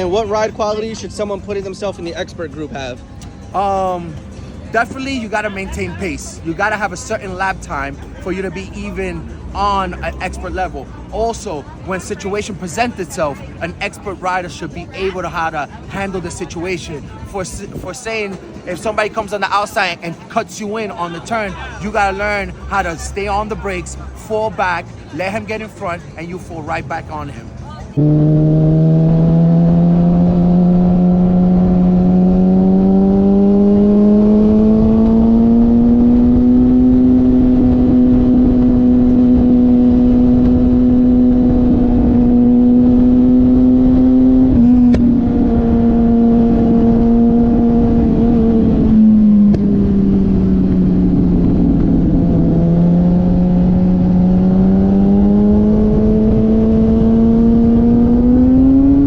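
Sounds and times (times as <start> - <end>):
motorcycle engine running hard: 28.0 - 59.0.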